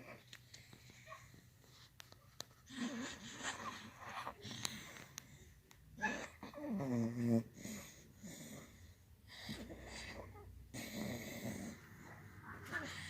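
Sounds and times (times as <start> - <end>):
dog moaning: 6.0 - 8.7
dog snoring and wheezing: 6.0 - 13.0.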